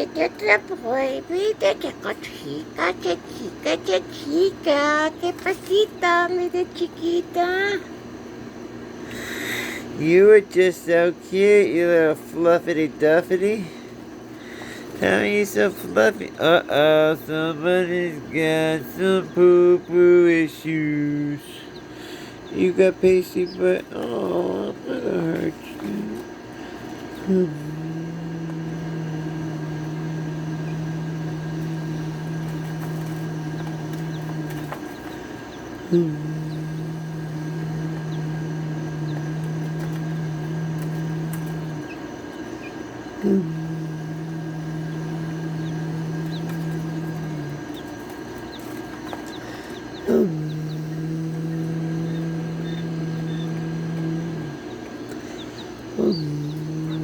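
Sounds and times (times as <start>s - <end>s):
baby chicks peeping: 9.1s - 57.0s
person humming low note: 15.0s - 21.6s, 22.5s - 26.3s, 27.1s - 35.2s, 35.8s - 42.0s, 43.2s - 48.1s, 49.4s - 57.0s.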